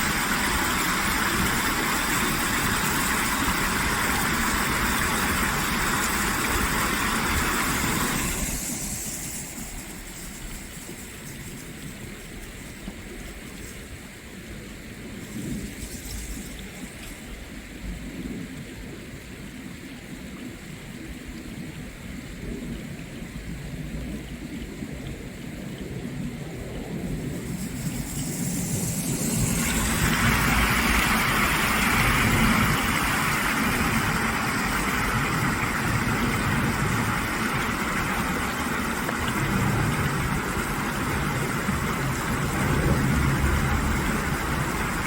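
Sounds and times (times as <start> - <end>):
stream water rushing: 0.0 - 10.2, 27.2 - 45.0
low rumble: 26.0 - 45.0.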